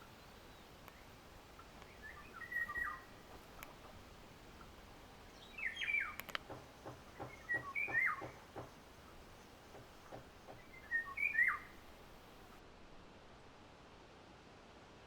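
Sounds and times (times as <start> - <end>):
faint clicks: 0.7 - 12.6
songbird whistled notes: 1.8 - 3.2, 5.4 - 6.3, 7.1 - 8.4, 10.5 - 11.9.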